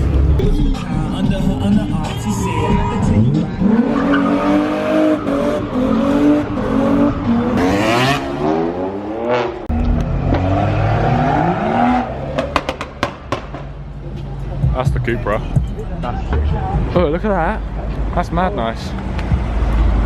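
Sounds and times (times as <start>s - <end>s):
car engine revving: 0.0s - 14.0s
exhaust popping: 12.3s - 13.8s.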